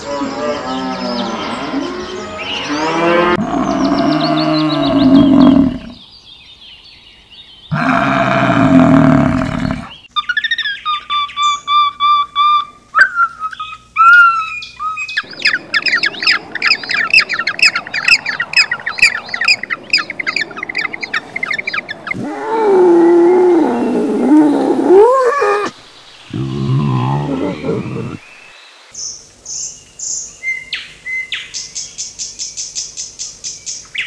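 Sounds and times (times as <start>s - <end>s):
wavering lower animal call: 15.2s - 28.2s.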